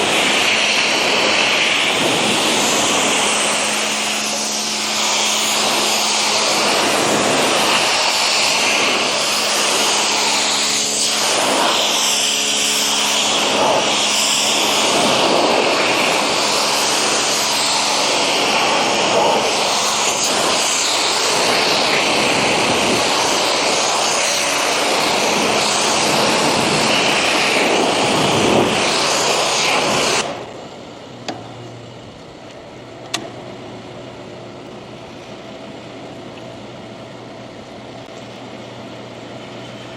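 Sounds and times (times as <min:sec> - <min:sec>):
pressure washer water jet hissing: 0:00.0 - 0:30.7
motor and pump humming: 0:00.0 - 0:39.9.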